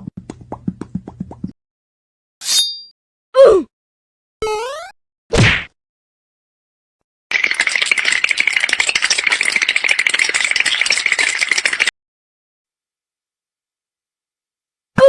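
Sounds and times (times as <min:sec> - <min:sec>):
fast rattle of clicks: 0:07.3 - 0:11.9.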